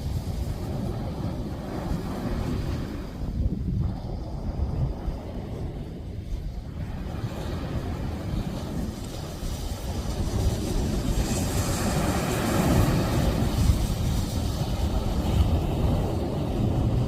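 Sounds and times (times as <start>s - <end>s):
surf rushing: 0.0s - 17.0s
wind buffeting microphone: 0.0s - 17.0s.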